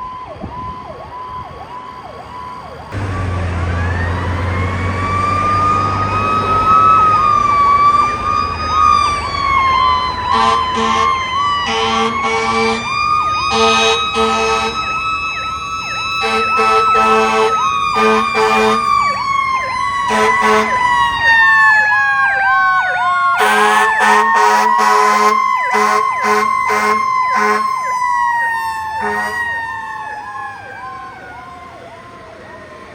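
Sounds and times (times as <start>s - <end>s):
siren wailing: 0.0s - 32.9s
siren yelping: 0.0s - 32.9s
deep horn blasts: 2.9s - 7.6s, 16.2s - 18.9s, 20.1s - 20.8s
truck engine rumble: 2.9s - 32.9s.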